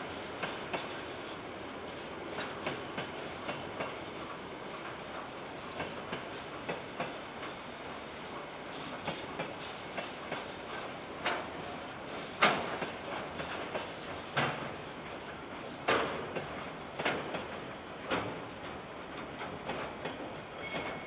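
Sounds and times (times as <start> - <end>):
steady rolling hiss: 0.0 - 21.0
wheels clicking over rail joints: 8.8 - 15.2, 15.8 - 21.0.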